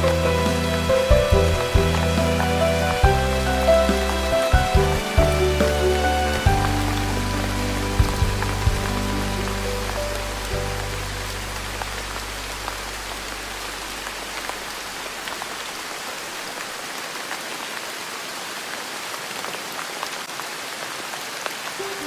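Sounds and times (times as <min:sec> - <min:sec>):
soft music chord: 0:00.0 - 0:14.2
steady rain falling: 0:00.0 - 0:22.0.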